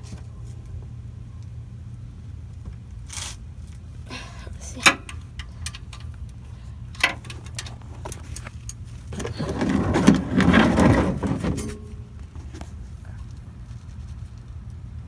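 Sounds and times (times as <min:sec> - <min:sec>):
metal clicks and knocks: 0:04.8 - 0:06.3, 0:06.9 - 0:12.7.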